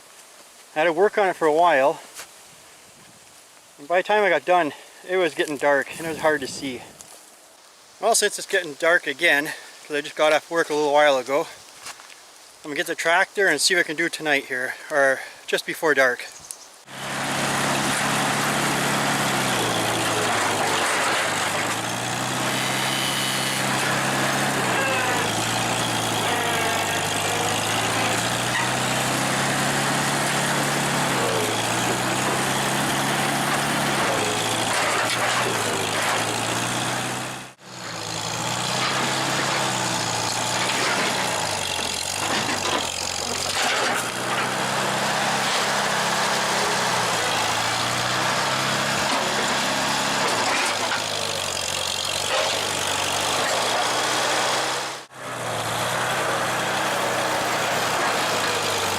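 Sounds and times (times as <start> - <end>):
tractor engine working: 16.9 - 58.9.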